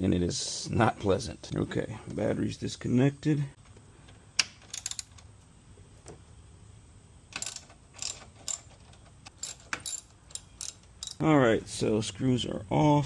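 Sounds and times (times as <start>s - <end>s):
hand tools clinking on metal: 7.4s - 11.2s.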